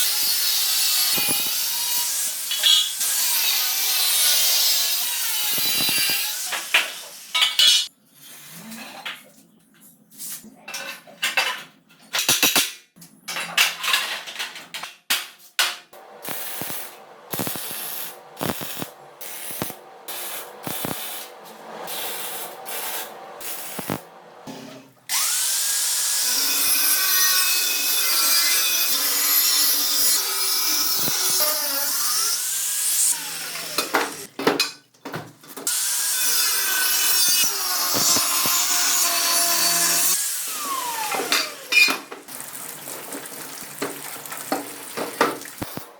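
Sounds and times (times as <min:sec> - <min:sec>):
hand tools and metal clinking: 0:05.4 - 0:07.9, 0:33.0 - 0:42.2
power tool running under load: 0:37.6 - 0:41.7.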